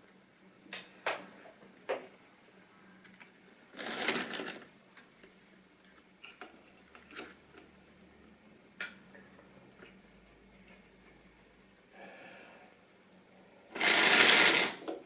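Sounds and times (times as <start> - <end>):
rustling noise: 3.6 - 5.4
model train hum: 13.8 - 14.8.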